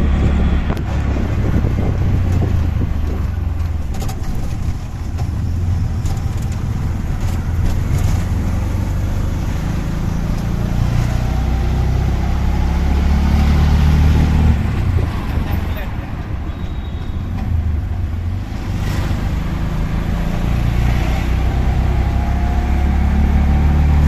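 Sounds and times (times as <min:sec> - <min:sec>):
auto-rickshaw engine running: 0:00.0 - 0:24.0
road and traffic noise: 0:00.0 - 0:24.0.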